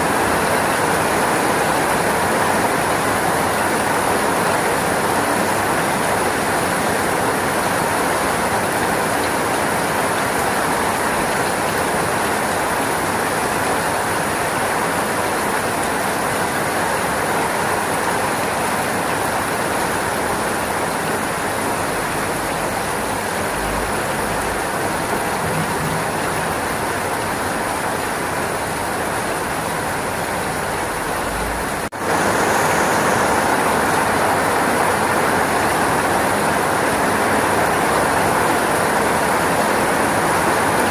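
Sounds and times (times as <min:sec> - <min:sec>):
heavy rain hissing: 0:16.8 - 0:40.9.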